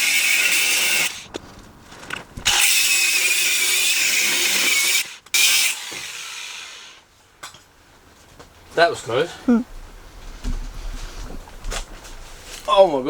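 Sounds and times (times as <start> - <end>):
angle grinder cutting steel: 0.0 - 1.3, 2.4 - 7.0.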